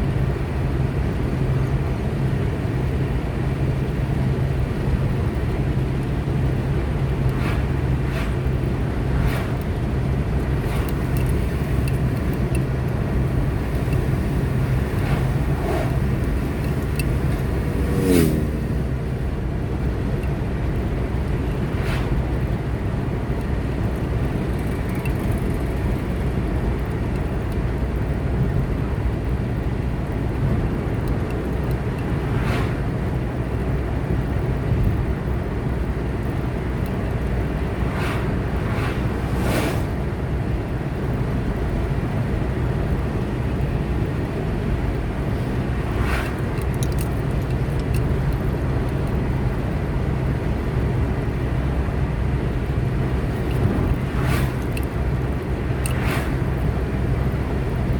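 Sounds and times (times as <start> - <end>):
car engine and tyre hum: 0.0 - 57.9
faint swishes: 7.3 - 9.8, 13.3 - 19.3, 32.2 - 33.0, 37.6 - 40.3, 45.2 - 47.2, 53.3 - 55.0, 55.7 - 56.9
whoosh with falling pitch: 14.0 - 19.4, 37.7 - 40.1.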